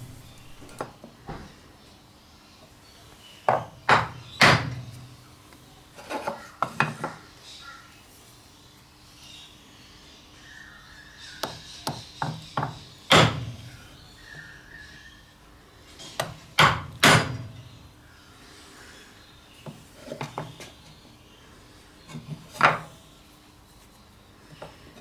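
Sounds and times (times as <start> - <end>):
chisel striking wood: 0.0 - 0.9, 11.4 - 13.7, 16.2 - 17.6.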